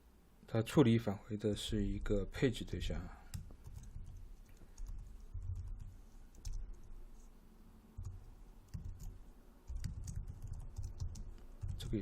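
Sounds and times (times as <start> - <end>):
computer keyboard typing: 3.3 - 6.9, 8.0 - 12.0.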